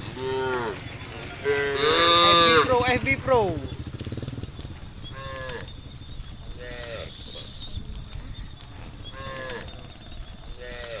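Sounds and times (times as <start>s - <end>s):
cattle mooing: 0.0s - 3.4s, 6.6s - 7.2s, 9.2s - 9.7s, 10.6s - 11.0s.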